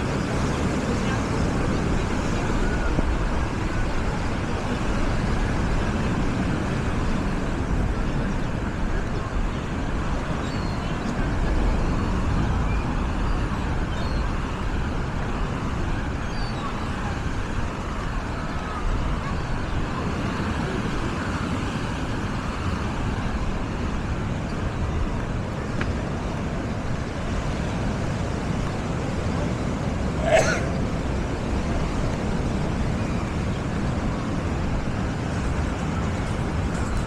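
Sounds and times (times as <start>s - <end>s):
faint voices: 0.0s - 13.2s, 28.1s - 37.0s
wind: 0.0s - 37.0s
surf rushing: 18.8s - 37.0s
sharp high-pitched cry: 30.2s - 30.9s.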